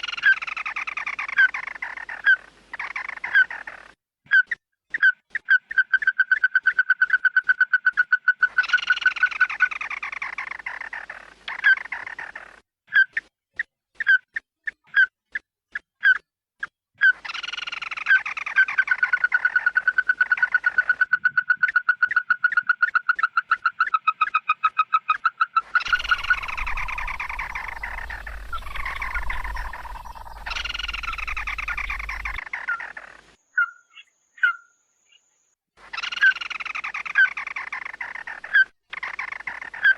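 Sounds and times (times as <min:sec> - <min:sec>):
fast runs of short bird notes: 0:25.8 - 0:32.5
harsh bird calls falling in pitch: 0:25.8 - 0:32.8
low rumble: 0:25.9 - 0:32.4.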